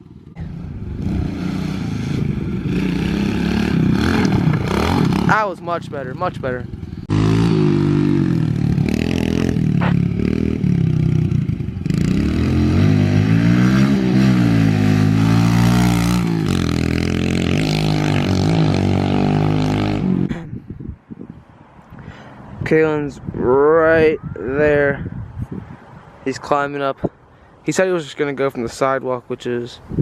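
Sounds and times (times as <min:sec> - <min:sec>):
motorbike engine revving: 0:00.0 - 0:20.3.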